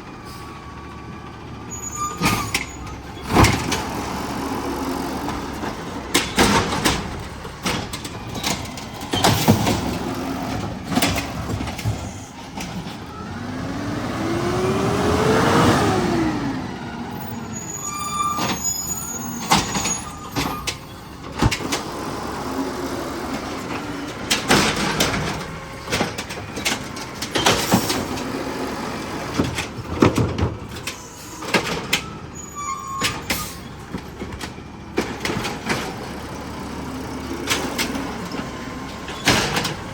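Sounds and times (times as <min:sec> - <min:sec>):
garbage truck engine revving: 0:00.0 - 0:39.9
metal clanks and bangs: 0:05.3 - 0:13.2, 0:23.4 - 0:28.4, 0:37.5 - 0:39.9.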